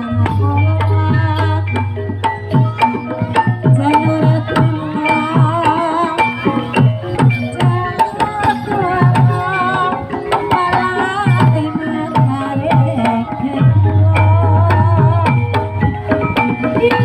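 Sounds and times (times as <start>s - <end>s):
hand drum strokes: 0.0s - 17.0s
ringing metallophone notes: 0.0s - 17.0s
wavering melody line: 0.0s - 17.0s.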